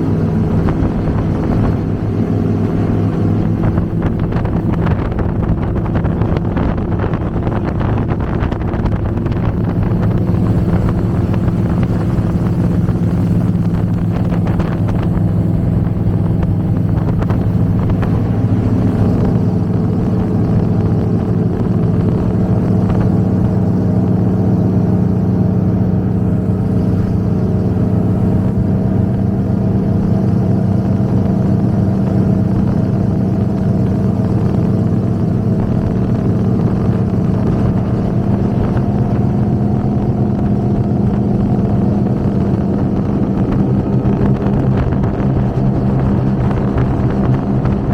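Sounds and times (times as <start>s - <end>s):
powerboat engines droning: 0.0s - 47.9s.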